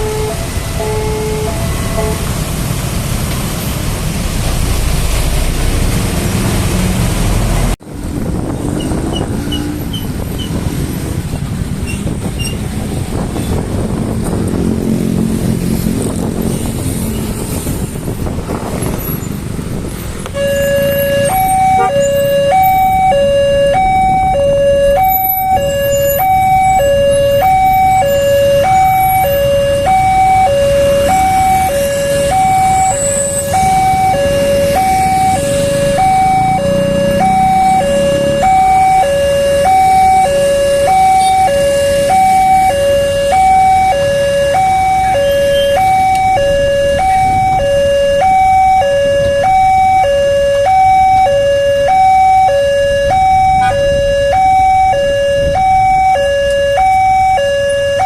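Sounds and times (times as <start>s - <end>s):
two-tone crossing alarm: 0.0s - 2.4s, 20.3s - 58.0s
road traffic engine hum: 0.0s - 58.0s.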